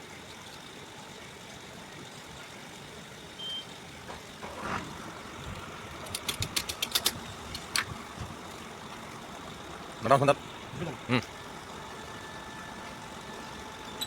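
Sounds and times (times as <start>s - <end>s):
sharp clicks: 6.0s - 7.9s.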